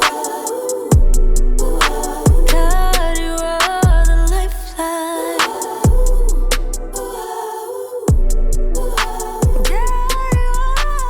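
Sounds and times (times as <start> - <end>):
keyboard chords: 0.0 - 4.5.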